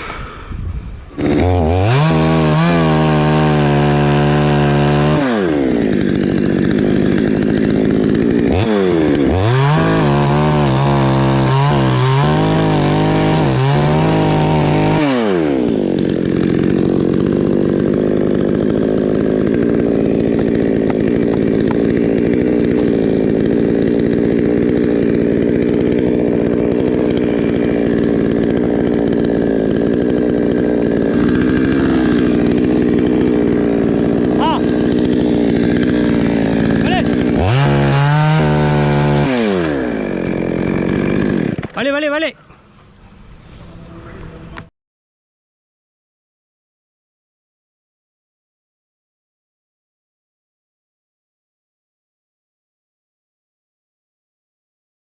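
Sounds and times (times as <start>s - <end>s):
chainsaw revving and cutting: 0.0s - 44.7s.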